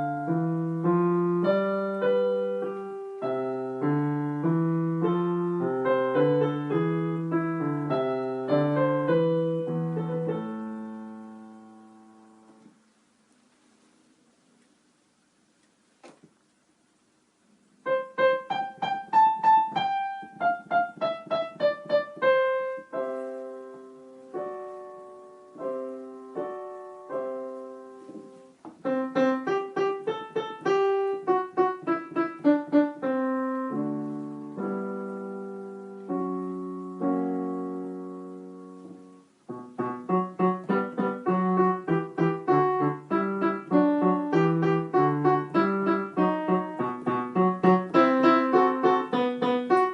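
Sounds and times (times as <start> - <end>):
solo piano piece: 0.0 - 14.6, 15.8 - 49.9.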